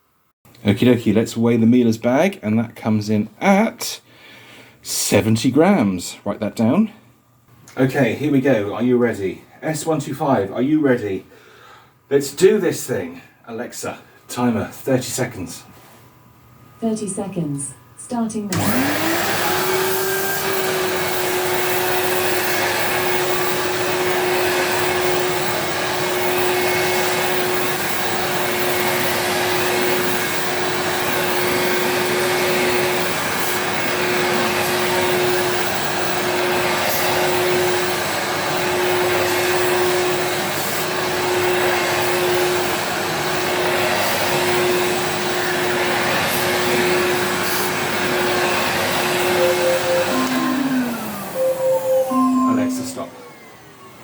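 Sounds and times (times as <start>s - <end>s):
vacuum cleaner running: 18.5s - 54.0s.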